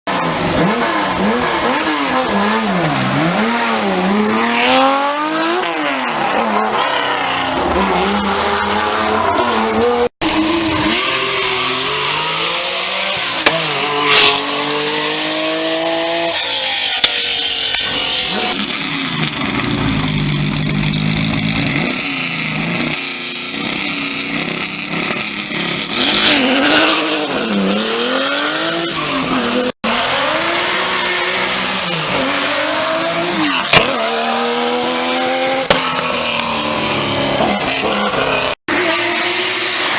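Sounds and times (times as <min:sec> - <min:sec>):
rally car engine revving hard: 0:00.1 - 0:16.6, 0:18.2 - 0:39.9.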